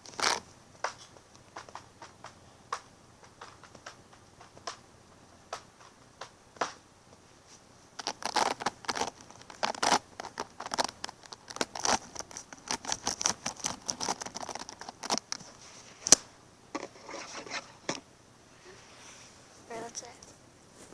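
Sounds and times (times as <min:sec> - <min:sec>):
small crackling clicks and taps: 0:00.0 - 0:07.2, 0:08.0 - 0:16.9.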